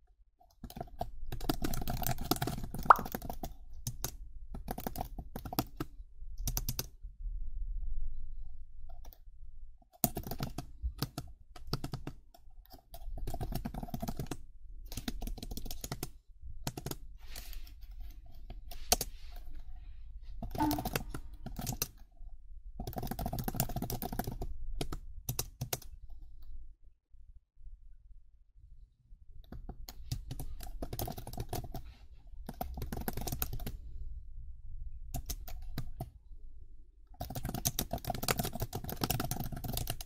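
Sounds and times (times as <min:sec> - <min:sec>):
keyboard typing: 0:00.5 - 0:07.0, 0:09.9 - 0:17.1, 0:20.4 - 0:22.1, 0:22.8 - 0:26.0, 0:29.4 - 0:31.8, 0:32.4 - 0:33.8, 0:35.1 - 0:36.2, 0:37.2 - 0:40.0.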